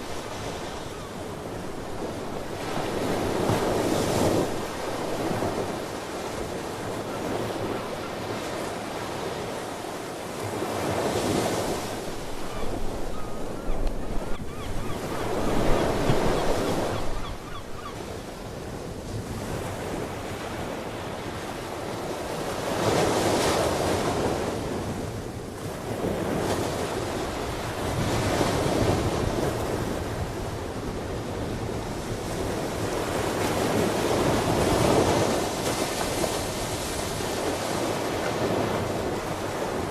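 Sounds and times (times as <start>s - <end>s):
wind on microphone: 10.8s - 20.8s.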